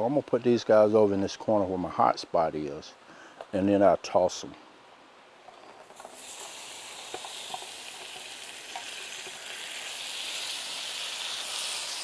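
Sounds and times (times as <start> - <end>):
food sizzling on a griddle: 5.9 - 12.0
utensil clicking on griddle: 6.0 - 12.0.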